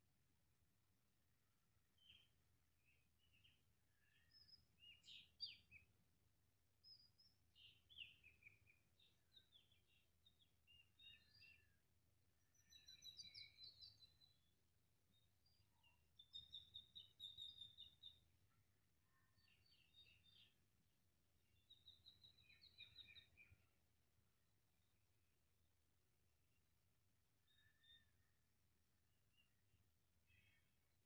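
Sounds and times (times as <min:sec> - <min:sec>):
faint bird chirps: 0:12.4 - 0:14.5, 0:15.1 - 0:18.2, 0:27.4 - 0:28.5, 0:30.2 - 0:31.0.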